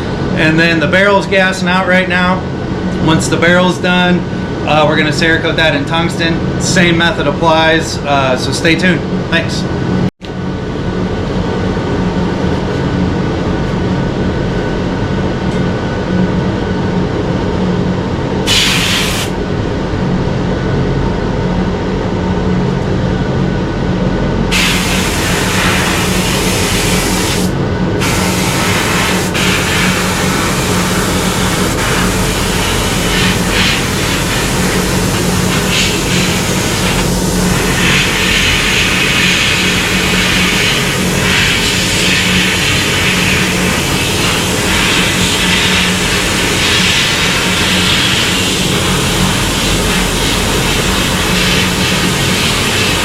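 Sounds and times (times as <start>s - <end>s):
steady mechanical hum: 0.0s - 53.0s
air spray gun hissing: 18.5s - 19.4s, 24.5s - 53.0s.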